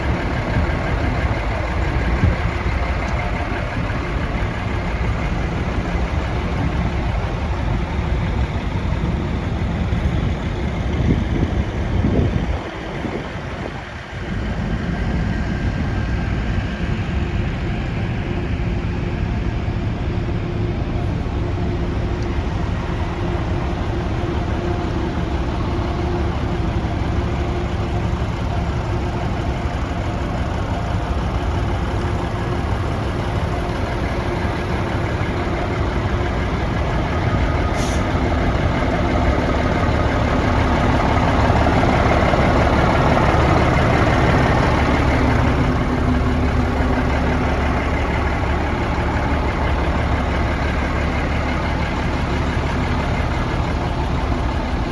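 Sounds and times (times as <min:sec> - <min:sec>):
diesel truck engine idling: 0:00.0 - 0:54.9.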